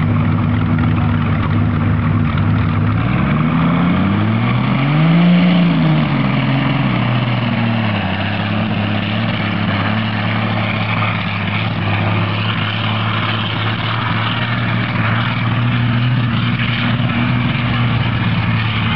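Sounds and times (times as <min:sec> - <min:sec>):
tractor engine revving and idling: 0:00.0 - 0:18.9.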